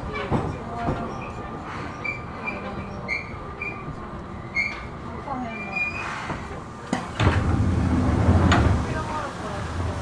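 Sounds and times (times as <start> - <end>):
train running rumble: 0.0 - 10.0
train brake squeaks: 1.0 - 6.6.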